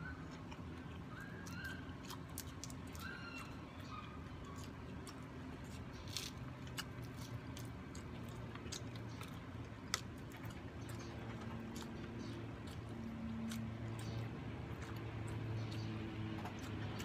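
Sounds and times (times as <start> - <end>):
person chewing food: 0.0 - 17.0
crisp crunches: 4.6 - 10.4.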